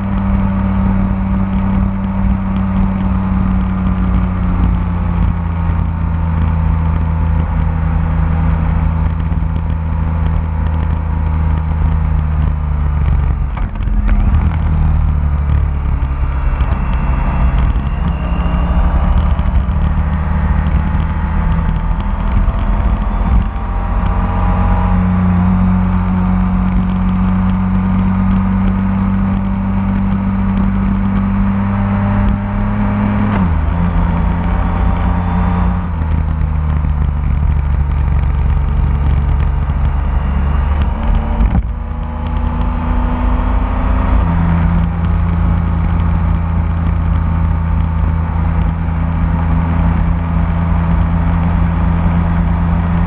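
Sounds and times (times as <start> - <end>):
motorcycle engine cruising: 0.0 - 53.0.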